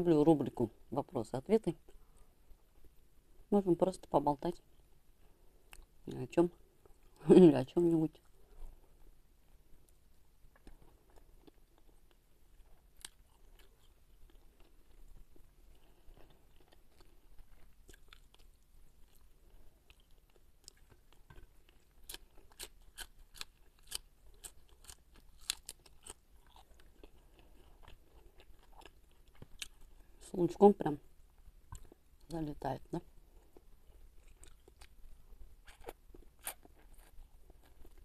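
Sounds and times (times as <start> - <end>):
close chewing with crunches: 9.8 - 30.3, 31.1 - 32.4, 33.0 - 38.0.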